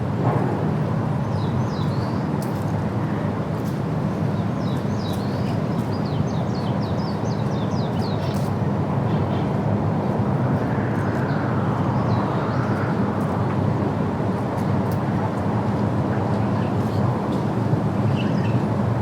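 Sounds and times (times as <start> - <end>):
distant traffic rumble: 8.8 - 19.0.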